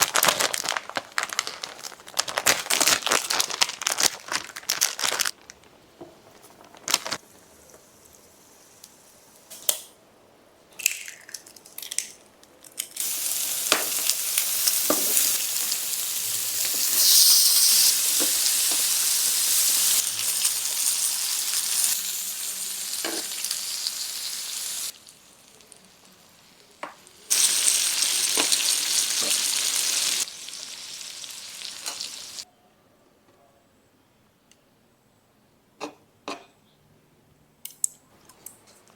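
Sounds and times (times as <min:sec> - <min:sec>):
food sizzling in a hot pan: 0:13.0 - 0:32.4.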